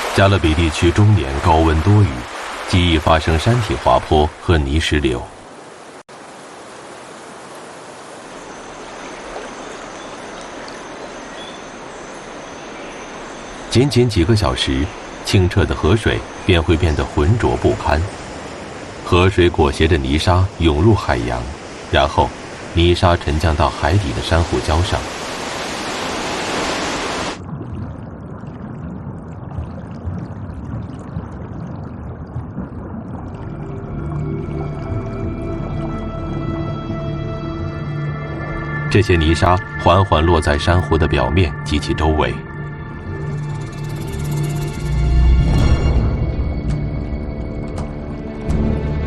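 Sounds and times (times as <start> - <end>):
flowing river water: 0.0 - 49.0
muffled underwater rumble: 27.4 - 37.8.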